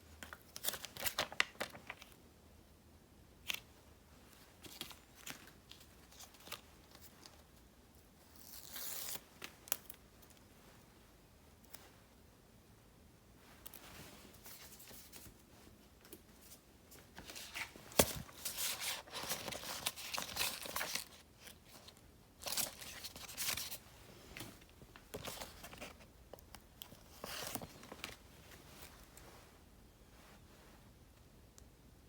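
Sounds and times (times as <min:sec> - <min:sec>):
paper stickers crinkling: 0:00.2 - 0:02.2, 0:17.1 - 0:23.8.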